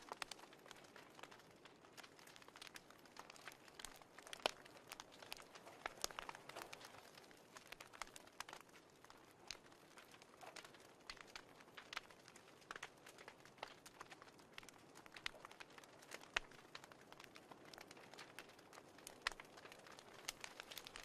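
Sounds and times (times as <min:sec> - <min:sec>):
fireplace crackling: 0:00.0 - 0:21.0.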